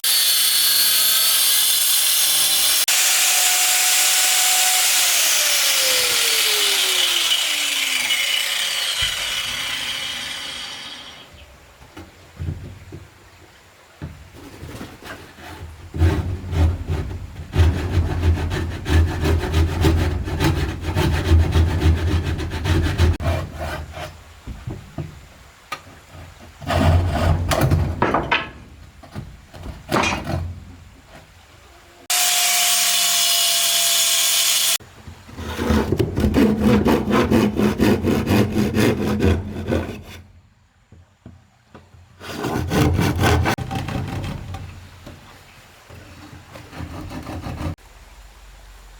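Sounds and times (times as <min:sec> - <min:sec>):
saw cutting wood: 0:00.0 - 0:11.4, 0:15.4 - 0:24.2, 0:26.6 - 0:27.7, 0:32.0 - 0:34.8, 0:35.4 - 0:40.2, 0:42.2 - 0:44.5, 0:46.5 - 0:47.8.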